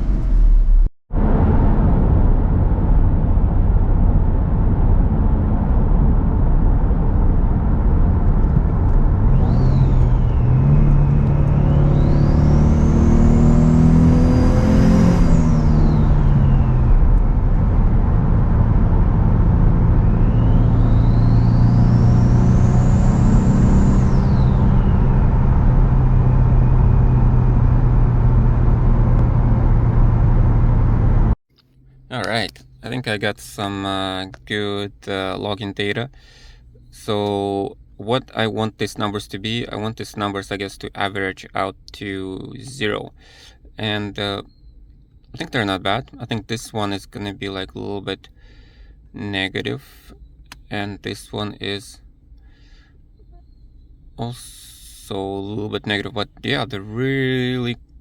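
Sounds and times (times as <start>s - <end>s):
car engine accelerating: 0.0s - 32.8s
high engine whistle: 9.3s - 28.1s.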